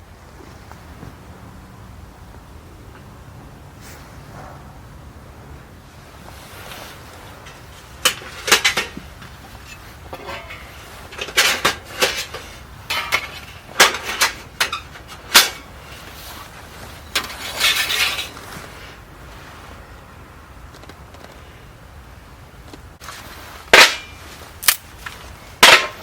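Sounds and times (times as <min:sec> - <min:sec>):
cookware clinking and clattering: 0:10.1 - 0:14.8.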